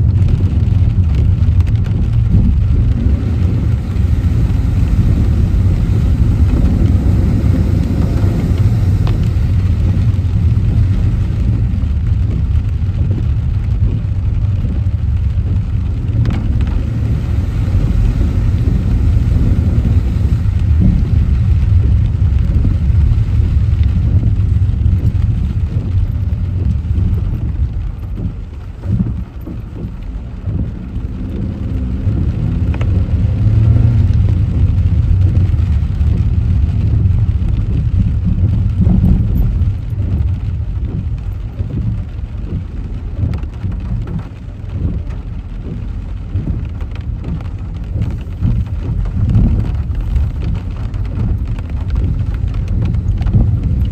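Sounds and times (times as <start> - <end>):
car road and engine rumble: 0.0 - 53.9
rain hissing: 0.0 - 53.9.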